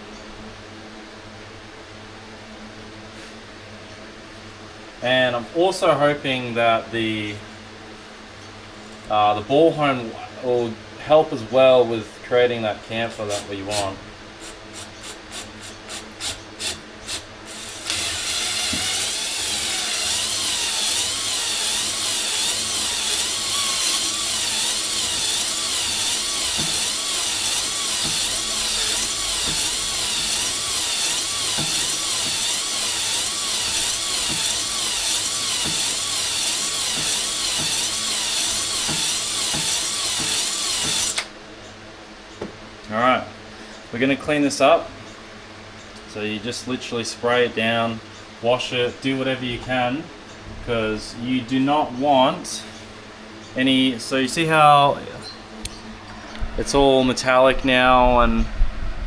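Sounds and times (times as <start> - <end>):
power drill spinning hone: 13.1 - 41.3.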